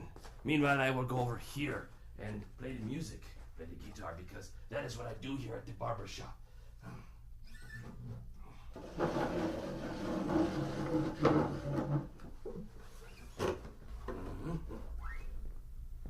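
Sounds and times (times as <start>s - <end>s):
wooden creaking and rubbing: 7.5s - 15.4s.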